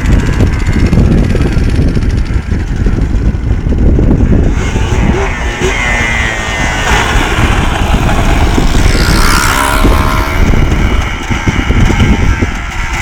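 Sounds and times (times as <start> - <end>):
quad engine revving: 0.0 - 13.0.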